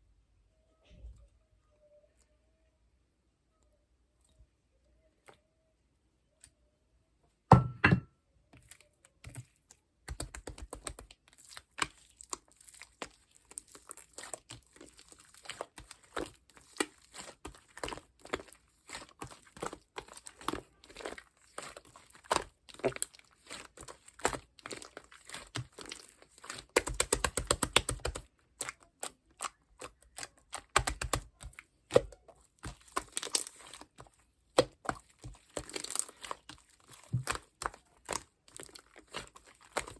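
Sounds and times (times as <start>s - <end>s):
slime squishing with sticky clicks: 8.6s - 39.9s.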